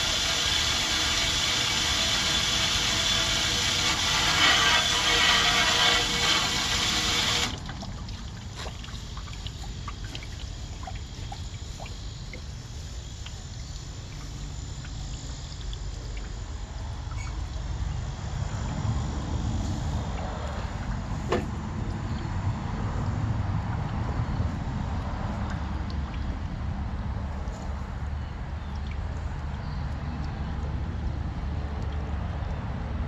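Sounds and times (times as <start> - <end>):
loud water spray: 0.0 - 7.8
water trickling and dripping: 0.1 - 18.8, 19.4 - 33.0.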